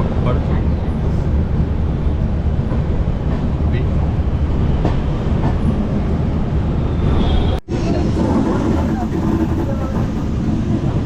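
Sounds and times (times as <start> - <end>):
passengers talking: 0.0 - 6.3, 7.7 - 11.0
train coach rumble: 7.4 - 11.0.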